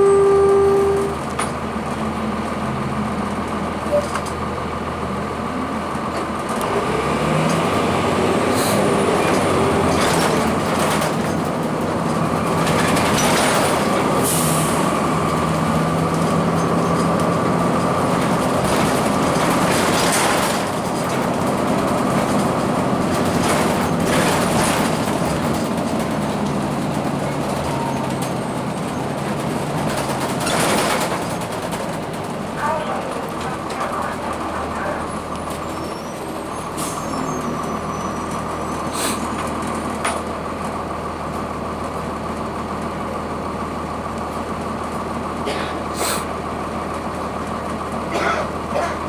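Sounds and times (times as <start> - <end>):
transmission whine: 0.0 - 1.5
bus diesel engine running: 0.0 - 49.0
body rattles and clunks: 15.8 - 35.8.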